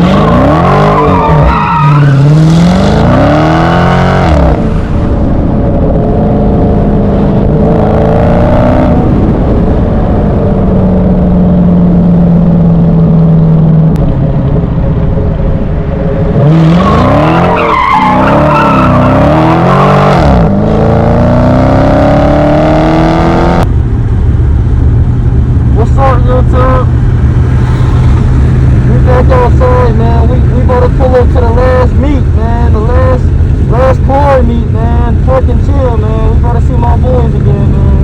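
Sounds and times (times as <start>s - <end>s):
tires squealing: 0.0s - 5.1s, 16.4s - 23.2s
car engine revving: 0.0s - 38.0s.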